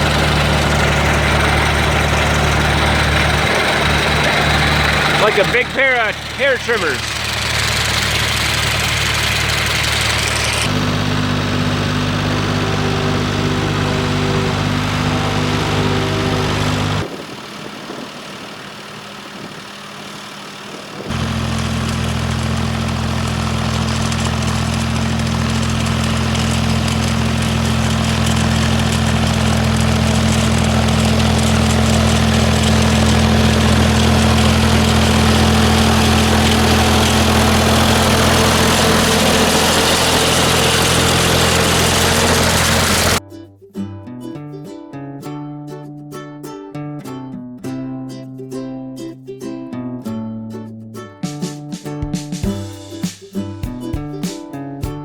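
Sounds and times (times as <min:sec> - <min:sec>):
mower engine running: 0:00.0 - 0:43.2.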